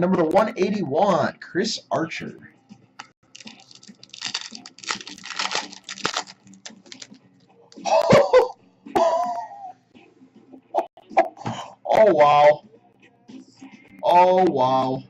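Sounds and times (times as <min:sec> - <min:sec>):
card packaging crinkling: 0:03.3 - 0:07.2.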